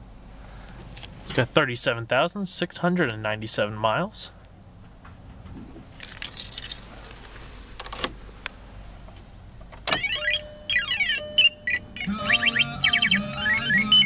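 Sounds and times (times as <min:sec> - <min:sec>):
brief jangle: 0:06.0 - 0:07.2
music: 0:12.0 - 0:14.0.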